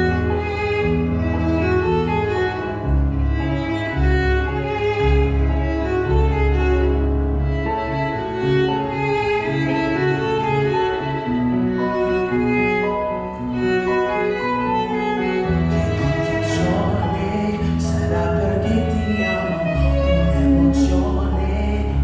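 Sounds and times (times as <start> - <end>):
deep bass line: 0.0 - 8.0
bowed strings: 0.0 - 22.0
piano accompaniment: 0.0 - 22.0
violin melody: 0.0 - 22.0.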